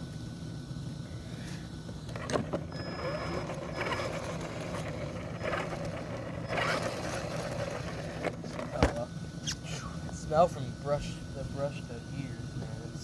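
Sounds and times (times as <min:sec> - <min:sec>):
thin high whine: 0:01.0 - 0:13.0
rc car motor whirring: 0:02.0 - 0:09.6.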